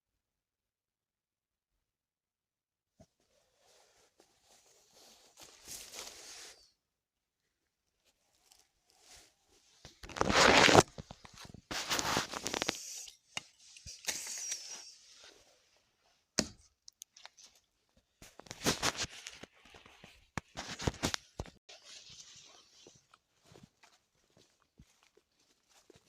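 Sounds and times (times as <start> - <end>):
rustling and scraping: 3.0 - 6.7, 8.0 - 15.9, 18.2 - 26.0.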